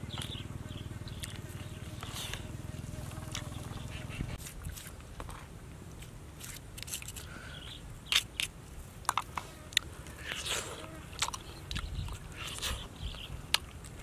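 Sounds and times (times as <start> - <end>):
chewing and smacking: 9.0 - 14.0.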